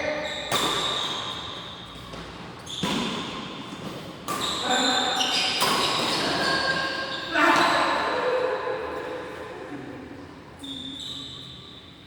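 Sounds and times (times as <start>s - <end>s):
rackets hitting shuttlecock: 0.5s - 1.3s, 2.0s - 4.8s.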